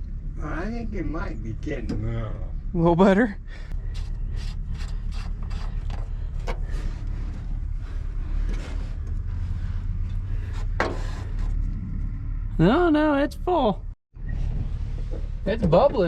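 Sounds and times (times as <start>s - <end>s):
truck engine idling: 0.0s - 16.0s
brake scrapes and clicks: 3.7s - 12.2s.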